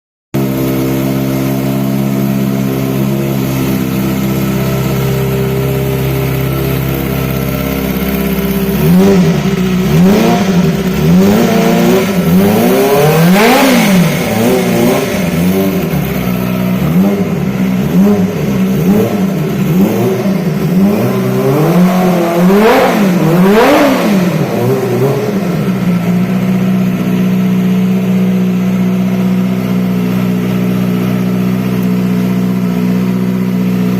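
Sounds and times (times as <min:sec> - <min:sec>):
motorcycle engine idling and revving: 0:00.4 - 0:33.9.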